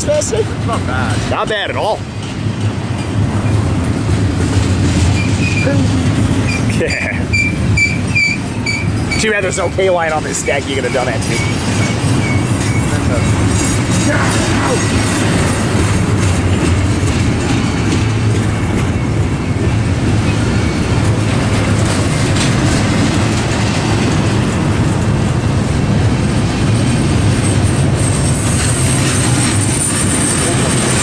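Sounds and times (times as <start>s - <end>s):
freight train rumbling past: 0.0s - 31.0s
wheels clicking over rail joints: 2.0s - 31.0s
high-pitched squeal: 5.1s - 15.9s, 26.6s - 31.0s.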